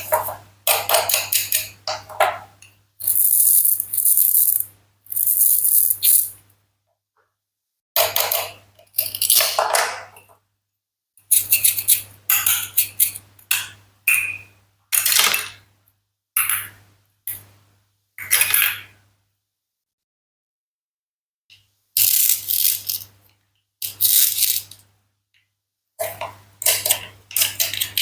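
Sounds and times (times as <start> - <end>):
toy food clinking and clattering: 3.0 - 6.3, 8.0 - 10.0, 11.3 - 14.3, 22.0 - 23.1, 23.8 - 24.8, 26.0 - 28.0.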